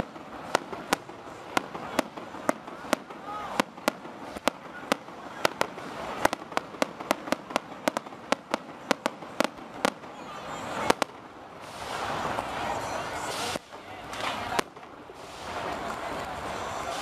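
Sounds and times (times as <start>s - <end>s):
firework shells bursting: 0.0s - 12.6s.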